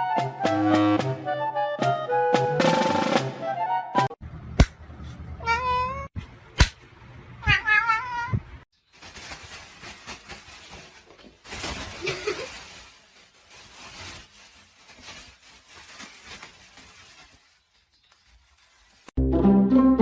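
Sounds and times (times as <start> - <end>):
cat meowing: 5.4 - 6.1, 7.4 - 8.5.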